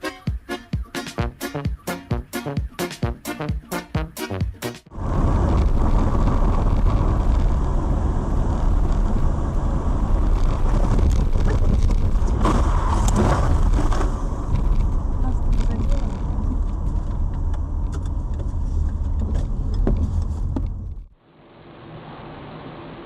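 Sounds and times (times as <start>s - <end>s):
car engine and road noise: 4.9s - 23.0s.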